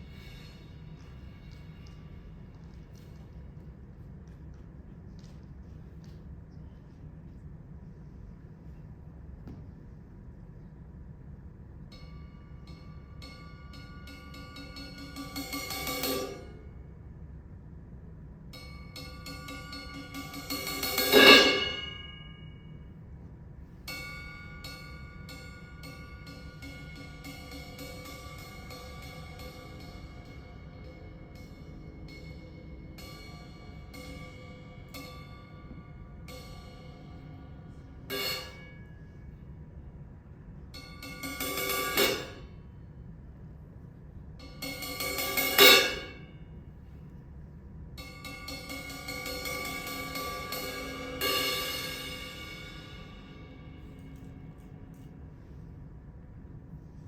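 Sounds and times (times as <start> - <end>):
cymbal crash: 0.0 - 2.3, 19.0 - 22.6, 23.9 - 39.2, 40.8 - 42.5, 44.6 - 46.3, 48.0 - 54.8
metal percussion strikes: 0.0 - 3.6, 11.8 - 16.9, 18.5 - 22.9, 23.8 - 39.4, 40.6 - 42.7, 44.4 - 46.4, 48.0 - 55.5
struck ringing pitched notes: 18.6 - 23.0, 23.9 - 39.4, 44.4 - 46.5, 48.0 - 55.1.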